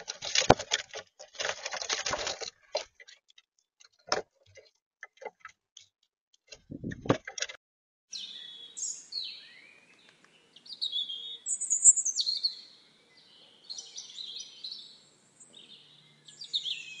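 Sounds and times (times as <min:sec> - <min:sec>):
songbirds chirping and singing: 0:08.1 - 0:17.0.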